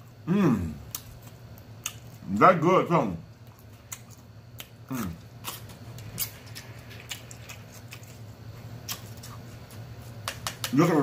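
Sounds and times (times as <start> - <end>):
person chewing: 0.0 - 2.4, 3.3 - 10.8
steady low hum: 0.0 - 11.0
person humming: 0.2 - 0.8.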